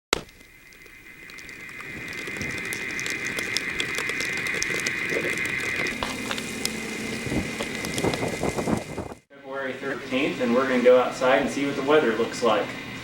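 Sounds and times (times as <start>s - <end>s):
mechanical clicking and ticking: 0.2s - 9.0s
low hum: 0.2s - 11.2s
steady high whine: 0.2s - 13.0s.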